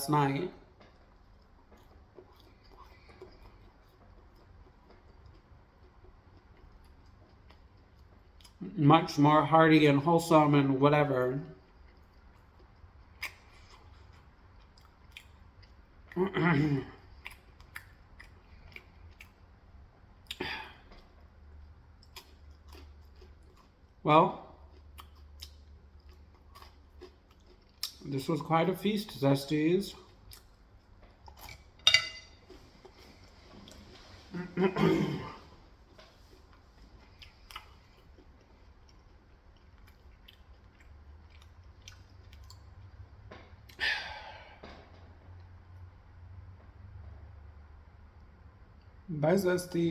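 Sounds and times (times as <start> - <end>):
chewing food: 0.6 - 8.7, 11.5 - 28.9, 29.8 - 34.6, 35.3 - 43.8.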